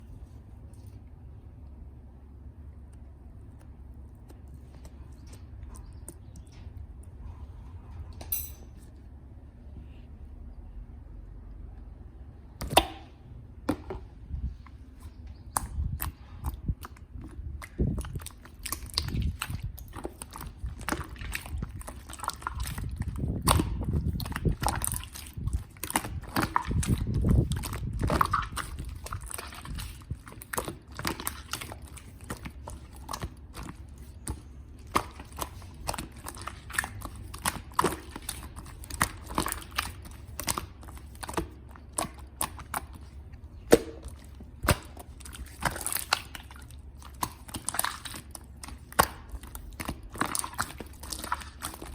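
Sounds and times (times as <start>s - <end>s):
hands kneading clay: 13.8s - 51.9s
clay squelches: 14.5s - 51.9s.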